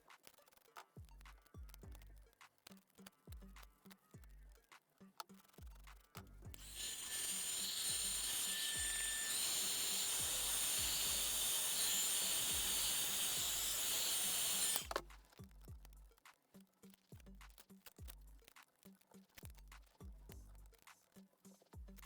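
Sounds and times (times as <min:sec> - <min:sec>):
background music with steady beat: 0:00.0 - 0:06.8, 0:14.8 - 0:22.0
tool high-pitched hiss: 0:06.6 - 0:15.0.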